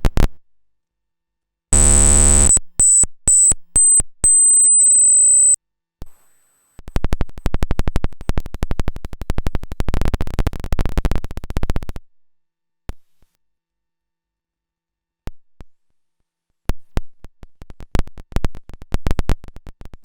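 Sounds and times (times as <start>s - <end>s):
high whistle: 1.8s - 5.6s
rapid sharp electronic clicks: 1.8s - 5.6s.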